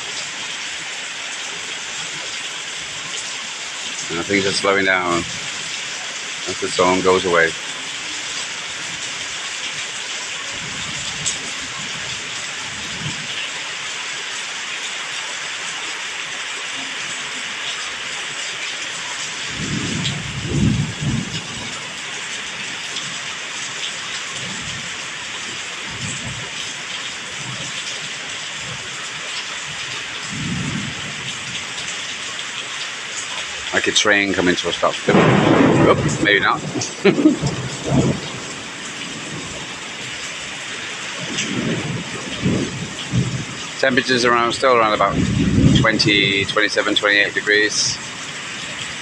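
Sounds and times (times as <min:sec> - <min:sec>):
heavy rain falling: 0:00.0 - 0:49.0
thunder rumbling: 0:04.1 - 0:05.6, 0:19.4 - 0:23.2, 0:30.2 - 0:31.6, 0:33.8 - 0:48.1.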